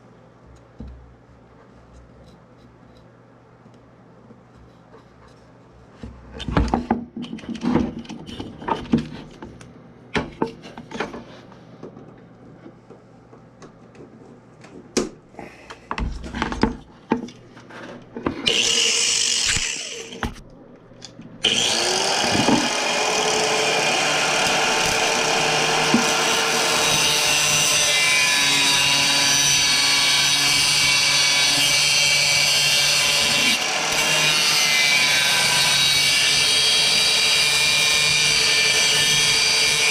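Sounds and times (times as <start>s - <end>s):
power tool running: 18.4s - 20.2s, 21.4s - 39.9s.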